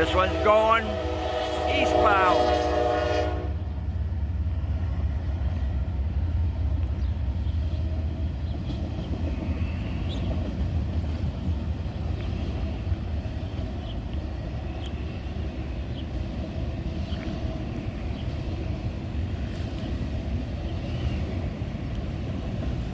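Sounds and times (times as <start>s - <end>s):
freight train rumbling past: 0.0s - 22.9s.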